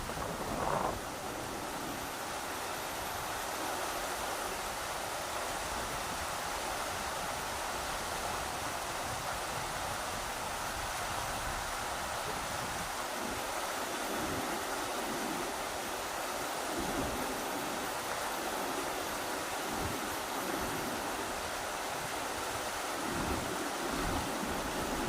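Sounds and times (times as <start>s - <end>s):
wind buffeting microphone: 0.0s - 3.3s
river water rushing: 0.0s - 25.0s.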